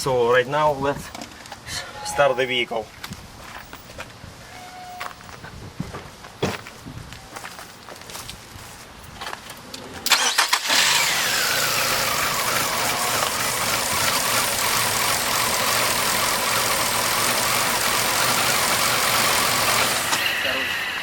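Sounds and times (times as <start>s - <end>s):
car engine cranking and idling: 10.0s - 21.0s.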